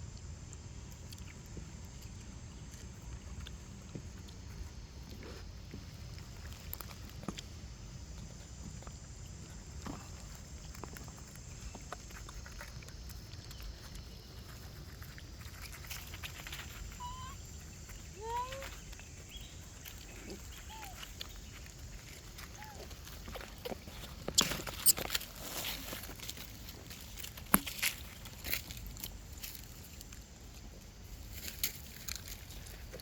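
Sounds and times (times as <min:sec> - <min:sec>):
small clicks and rustles: 0:00.9 - 0:33.0
monkey squeaky calls: 0:17.0 - 0:17.4, 0:20.6 - 0:21.0.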